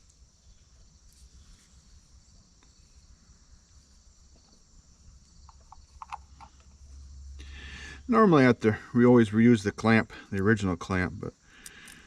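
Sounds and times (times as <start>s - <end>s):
faint ticks: 11.5s - 12.0s.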